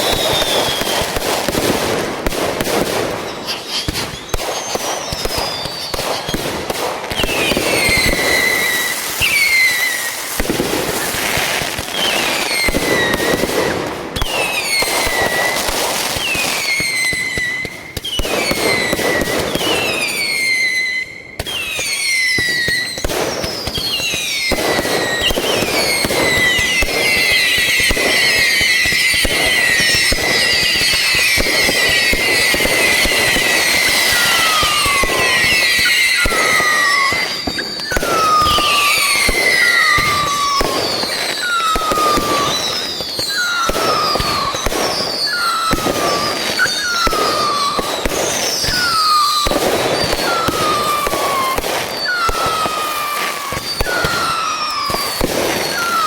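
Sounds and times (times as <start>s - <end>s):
descending firework whistles: 0.0s - 56.0s
fireworks bangs and crackling: 0.0s - 56.0s.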